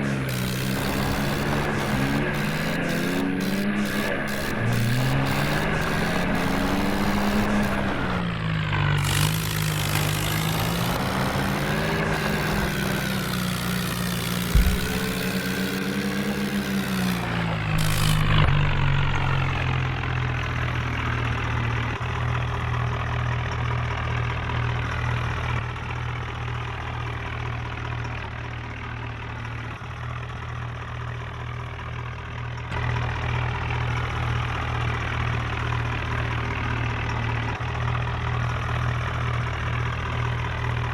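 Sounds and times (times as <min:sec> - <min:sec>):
tractor diesel engine revving: 0:00.0 - 0:28.0, 0:32.8 - 0:40.9
sharp knock: 0:14.5 - 0:15.5.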